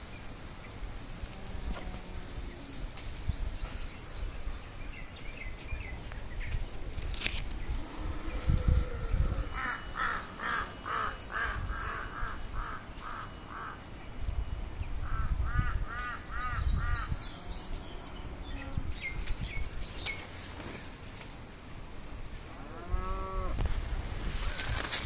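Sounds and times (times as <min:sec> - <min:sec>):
low microphone rumble: 0:00.4 - 0:24.8
bird calls: 0:07.4 - 0:21.4.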